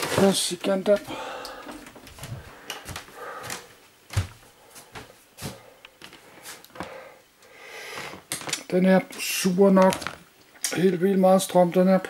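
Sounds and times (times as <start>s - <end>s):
plastic bag rustling: 0.0s - 1.0s, 9.4s - 10.3s.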